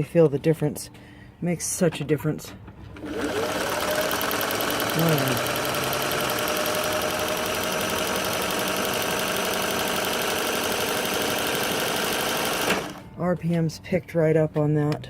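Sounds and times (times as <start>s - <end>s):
sewing machine running: 2.9s - 13.0s.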